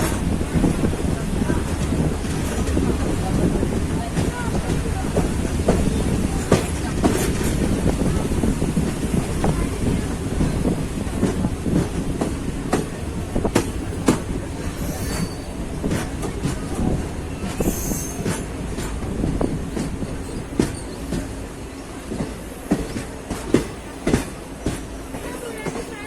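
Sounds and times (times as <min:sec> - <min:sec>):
train wheels clanking: 0:00.0 - 0:21.4
train rumbling over bridge: 0:00.0 - 0:26.0
high wheel squeals: 0:14.8 - 0:15.6, 0:17.6 - 0:18.3.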